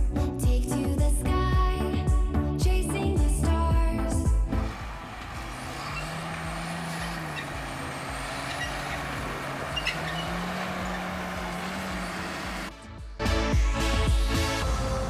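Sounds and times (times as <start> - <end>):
farm machine engine running: 4.6 - 12.7.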